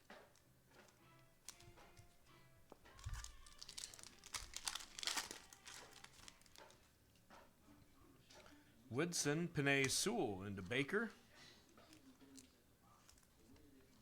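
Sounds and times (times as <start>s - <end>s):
foil wrapper tearing and crinkling: 3.0s - 6.8s.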